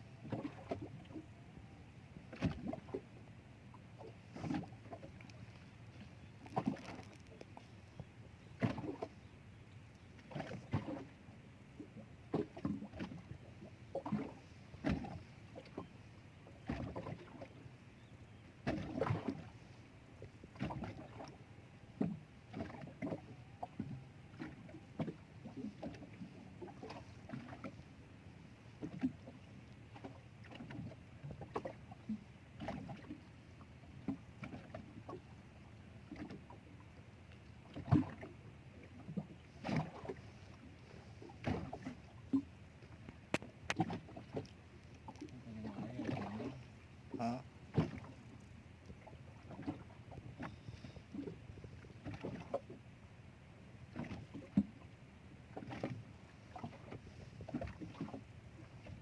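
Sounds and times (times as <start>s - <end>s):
water lapping against boat hull: 0.0s - 59.0s.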